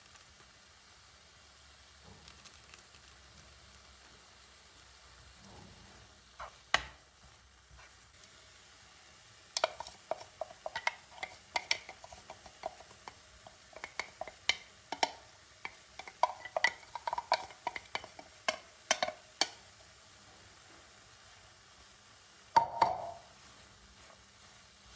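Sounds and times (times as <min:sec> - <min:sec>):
spoon clinking and scraping container: 0:09.6 - 0:19.6.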